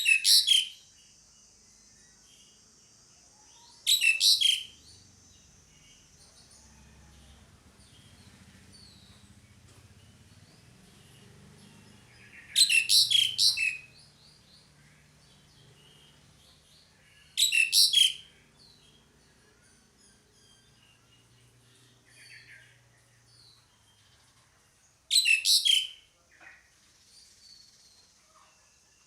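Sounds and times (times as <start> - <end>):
faint bird chirps: 0.0 - 29.0
starling chattering call: 12.3 - 13.8.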